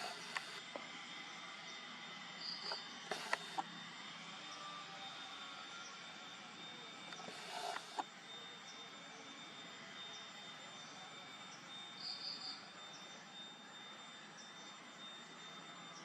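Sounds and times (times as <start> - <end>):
high steady tone: 0.0 - 0.8.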